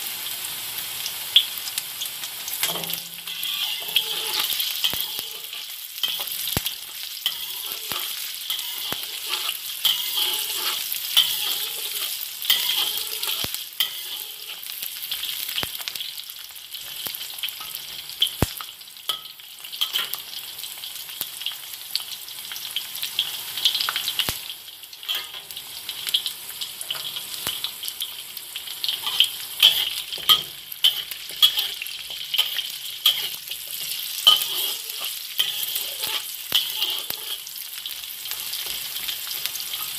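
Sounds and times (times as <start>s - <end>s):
garlic sizzling in hot oil: 0.0s - 39.9s
metal spatula scraping wok: 2.6s - 15.5s, 19.1s - 20.2s, 25.1s - 25.6s, 28.8s - 39.9s.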